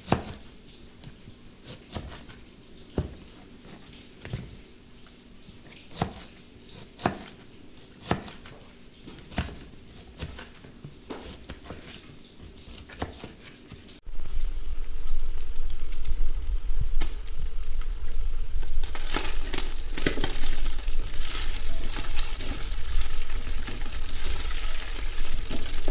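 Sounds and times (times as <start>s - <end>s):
knife chopping on cutting board: 0.0s - 0.4s, 5.9s - 7.4s, 8.0s - 13.4s.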